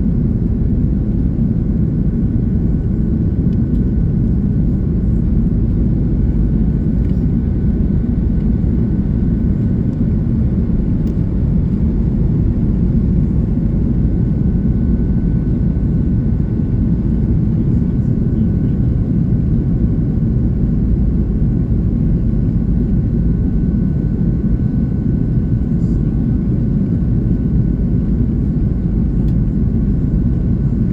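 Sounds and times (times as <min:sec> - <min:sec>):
faint steady whine: 0:00.0 - 0:19.3
deep rumble of engines and airflow: 0:00.0 - 0:30.9.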